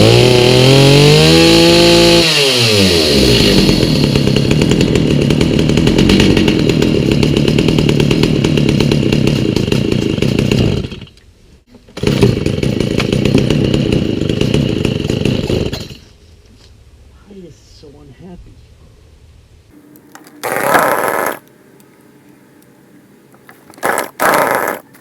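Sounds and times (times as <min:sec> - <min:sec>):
chainsaw engine running: 0:00.0 - 0:11.1, 0:12.0 - 0:15.9, 0:20.2 - 0:21.4, 0:23.7 - 0:24.9.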